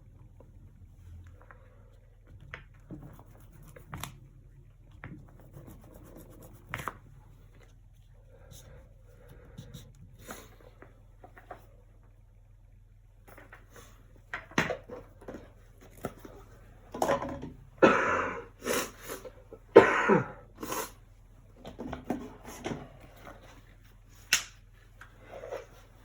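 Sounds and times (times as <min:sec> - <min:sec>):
person clearing throat: 0:17.8 - 0:19.0, 0:19.7 - 0:21.0
person coughing: 0:17.8 - 0:21.0.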